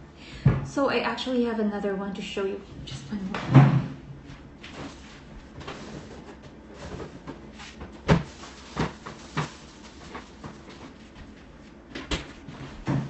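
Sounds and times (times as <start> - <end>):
knocks and clunks in refrigerator: 3.3 - 4.0, 11.9 - 13.0.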